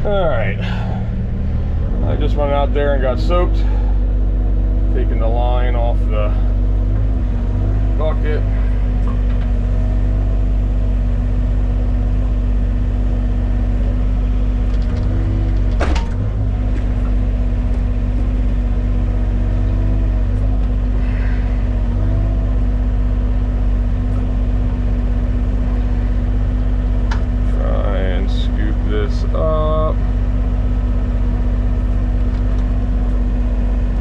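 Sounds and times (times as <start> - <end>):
excavator engine running: 0.0 - 34.0.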